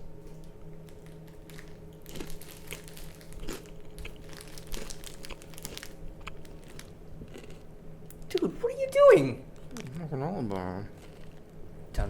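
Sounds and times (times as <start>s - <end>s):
low room hum: 0.0s - 12.0s
wrapper crinkling: 0.2s - 7.6s, 9.5s - 11.6s.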